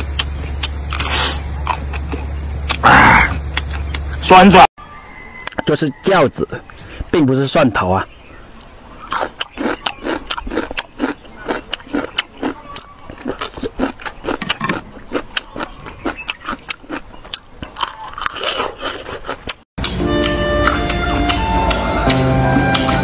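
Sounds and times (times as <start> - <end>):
crunchy chewing: 0.0 - 4.2, 8.6 - 19.7.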